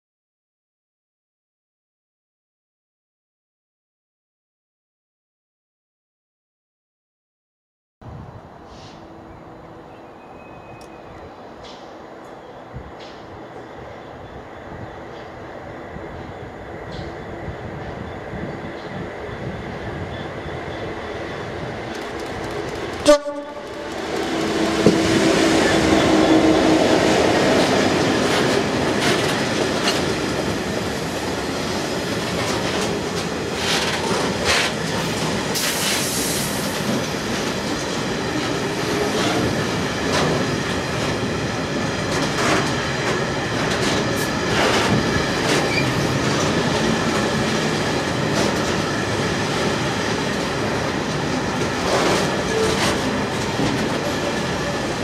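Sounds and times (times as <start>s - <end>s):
diesel locomotive engine: 8.1s - 55.0s
brief high wheel squeal: 45.6s - 46.0s.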